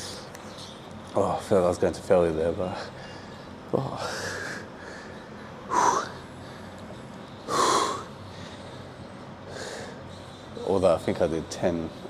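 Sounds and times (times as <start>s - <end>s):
man breathing hard: 2.8s - 6.8s, 7.4s - 8.9s, 9.5s - 10.2s.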